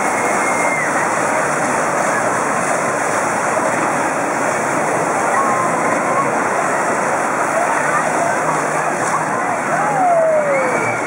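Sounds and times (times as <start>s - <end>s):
water churning: 0.0s - 11.0s.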